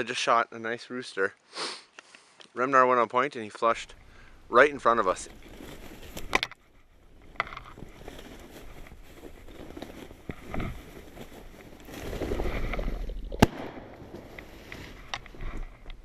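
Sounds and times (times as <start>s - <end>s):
rustling noise: 4.5s - 16.0s
shotgun shot: 13.4s - 14.0s.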